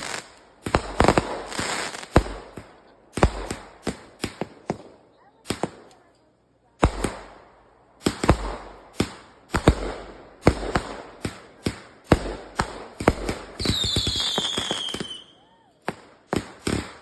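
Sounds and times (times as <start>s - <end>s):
fireworks bangs: 0.0s - 6.0s, 6.8s - 17.0s
high firework whistle: 13.6s - 15.9s.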